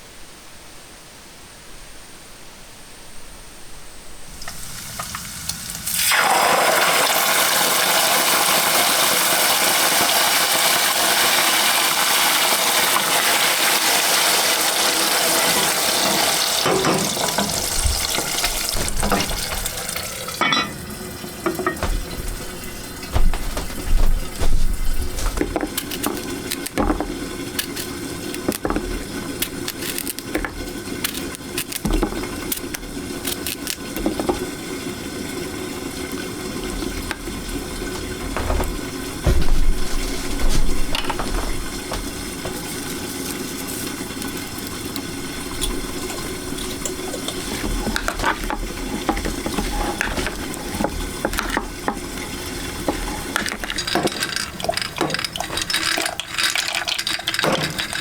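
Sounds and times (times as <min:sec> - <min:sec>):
liquid bubbling and sizzling: 0:04.3 - 0:58.0
utensil clinking against pot: 0:16.0 - 0:34.5, 0:44.2 - 0:58.0
utensil stirring and scraping: 0:21.6 - 0:34.5, 0:36.6 - 0:58.0.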